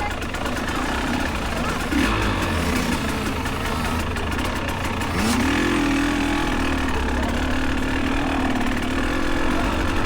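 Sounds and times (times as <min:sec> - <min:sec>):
dirt bike engines idling: 0:00.0 - 0:10.0
dirt bike engine revving: 0:00.4 - 0:10.0.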